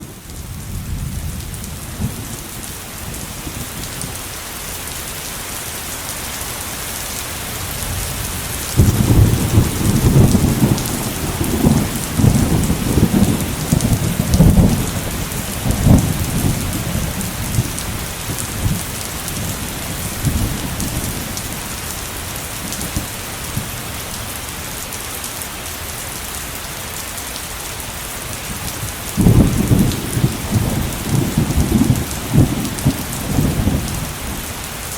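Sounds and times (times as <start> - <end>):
heavy rain falling: 0.0 - 34.9
rolling thunder rumble: 7.6 - 23.9, 28.4 - 34.8
thunderclap: 7.8 - 21.7, 28.5 - 34.5.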